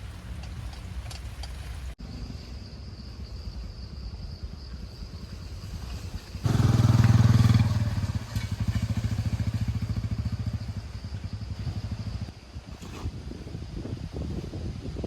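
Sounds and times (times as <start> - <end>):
engine running with steady pulse: 5.3 - 12.4.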